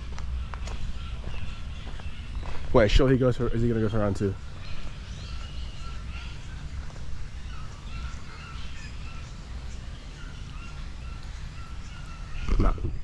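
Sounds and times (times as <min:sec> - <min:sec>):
birds chirping and calling: 0:00.0 - 0:13.0.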